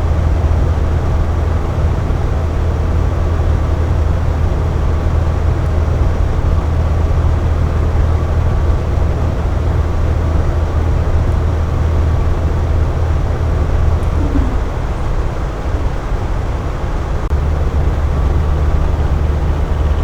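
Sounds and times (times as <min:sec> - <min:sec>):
air conditioner humming: 0:09.9 - 0:19.0.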